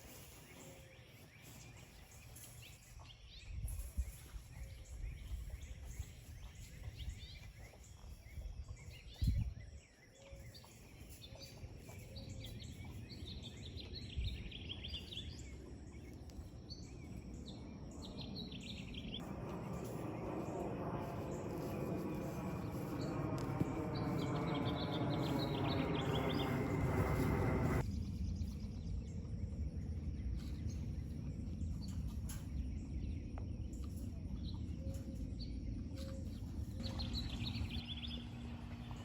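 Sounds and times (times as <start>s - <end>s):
small birds chirping: 0.0s - 29.3s
low background hum: 0.0s - 39.0s
humming drone: 15.4s - 28.4s.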